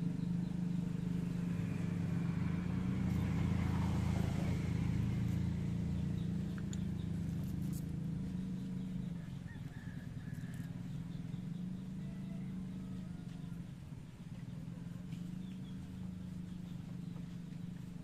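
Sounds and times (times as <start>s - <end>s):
electric fan motor humming: 0.0s - 9.4s.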